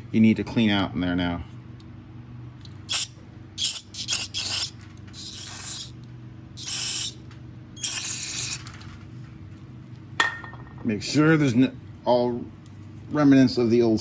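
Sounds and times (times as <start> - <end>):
steady low hum: 0.0 - 14.0
hissing spray bursts: 2.9 - 5.9, 6.6 - 7.2, 7.8 - 8.6.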